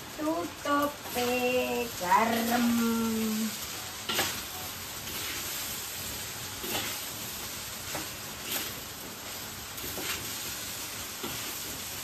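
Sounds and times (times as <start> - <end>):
rice sizzling in a wok: 0.0 - 12.0
spatula scraping a pan: 2.3 - 11.9.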